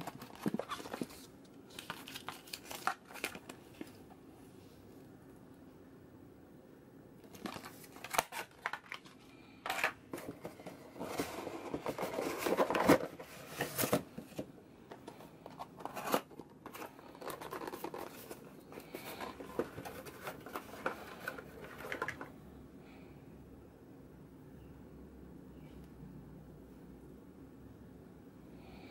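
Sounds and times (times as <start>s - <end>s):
packaging rustling and crinkling: 0.0s - 4.1s, 7.2s - 22.3s.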